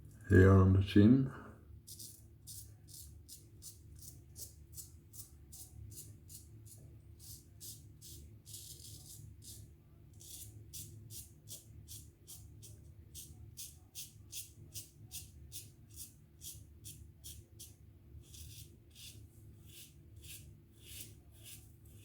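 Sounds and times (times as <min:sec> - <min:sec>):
razor scraping stubble: 0:18.3 - 0:22.0.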